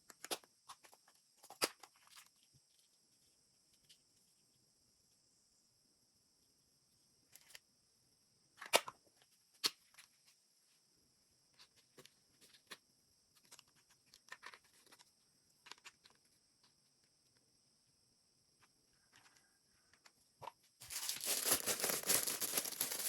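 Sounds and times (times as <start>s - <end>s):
hands handling small objects: 11.6s - 16.8s, 20.0s - 23.0s.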